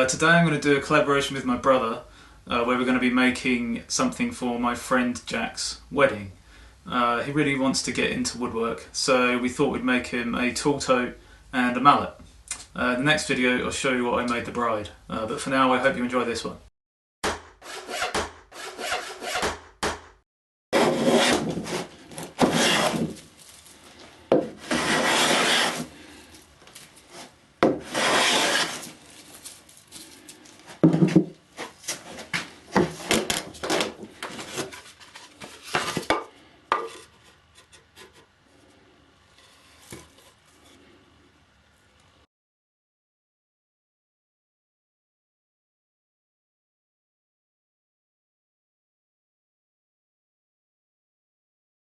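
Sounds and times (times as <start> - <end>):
tool scraping floorboard wood: 17.6 - 20.0, 20.8 - 41.0.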